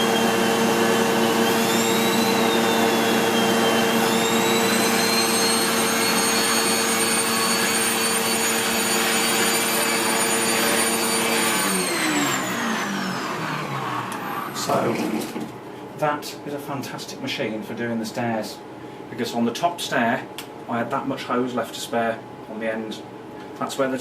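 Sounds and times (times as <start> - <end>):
vacuum cleaner motor whining: 0.0 - 15.6.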